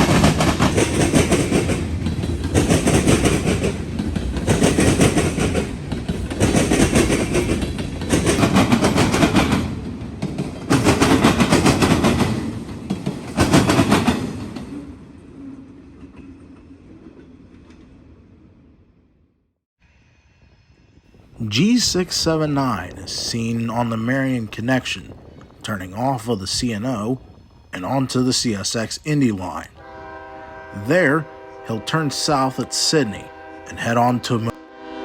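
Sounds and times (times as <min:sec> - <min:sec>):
train wheels clattering on track: 0:00.0 - 0:18.2.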